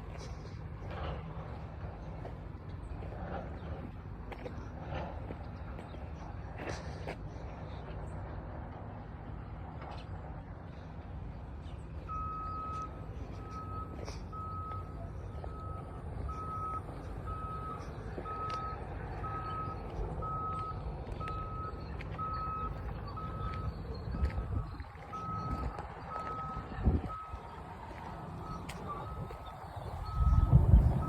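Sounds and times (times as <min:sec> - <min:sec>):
vehicle reversing alarm beeping: 0:11.4 - 0:31.0.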